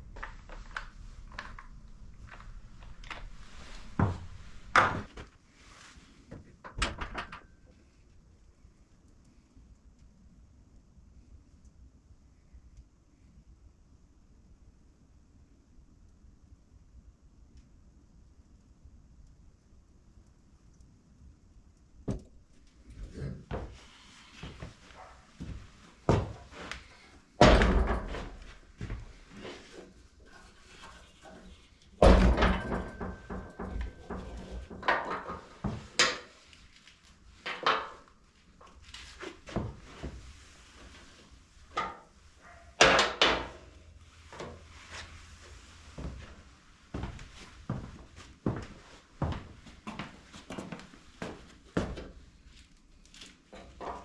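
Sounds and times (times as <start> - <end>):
tools and parts clattering: 27.4 - 36.4, 37.4 - 38.1.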